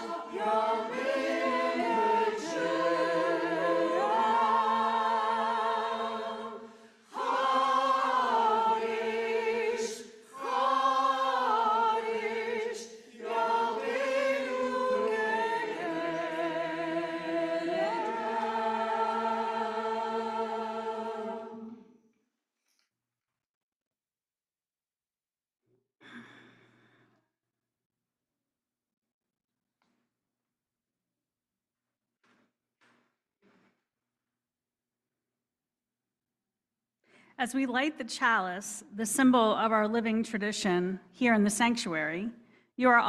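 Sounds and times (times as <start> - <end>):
choir singing unaccompanied: 0.0 - 21.9.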